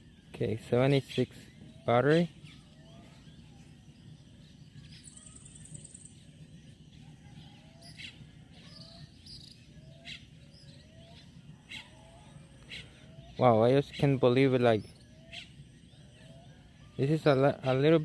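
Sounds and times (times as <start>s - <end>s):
high pulsing insect trill: 1.8s - 12.6s.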